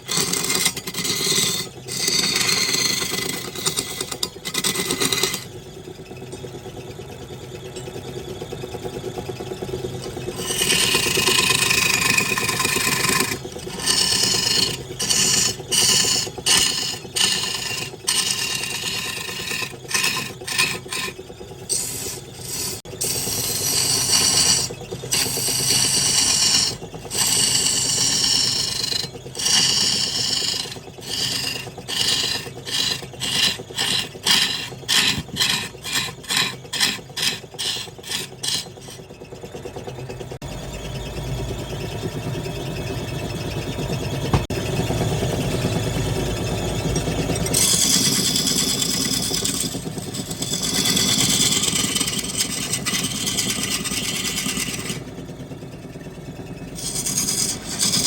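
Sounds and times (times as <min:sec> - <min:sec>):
wood lathe humming: 0:00.0 - 0:06.8, 0:08.9 - 0:40.4, 0:44.1 - 0:58.0
tool scraping spinning wood: 0:00.0 - 0:40.5, 0:42.4 - 0:58.0.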